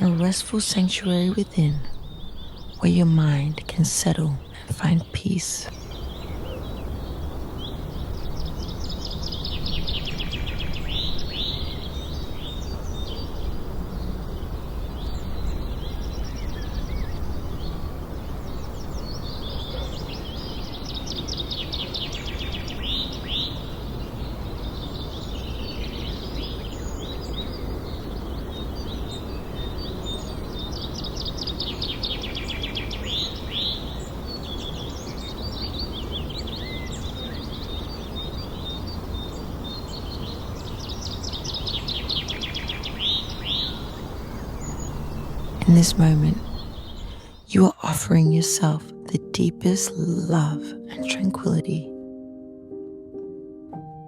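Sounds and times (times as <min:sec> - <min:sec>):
songbirds trilling and chirping: 0:00.0 - 0:48.8
outdoor nature background noise: 0:00.0 - 0:54.0.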